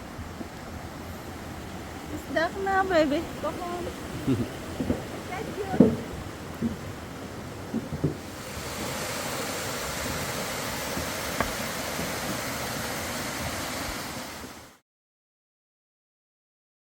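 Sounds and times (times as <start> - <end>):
steady rushing noise: 0.0 - 14.8.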